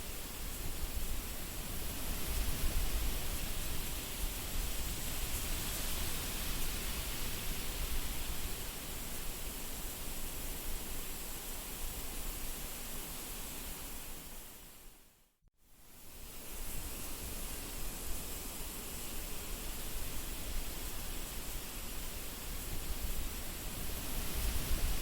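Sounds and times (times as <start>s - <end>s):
wind blowing in gusts: 0.0s - 14.1s, 19.3s - 25.0s.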